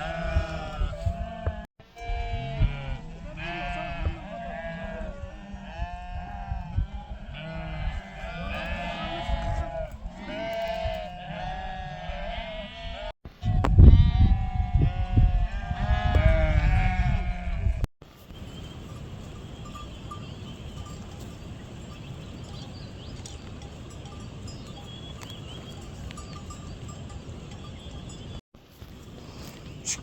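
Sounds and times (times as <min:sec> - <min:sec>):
livestock bleating: 0:00.0 - 0:17.9
faint bell tinkles: 0:18.2 - 0:28.4.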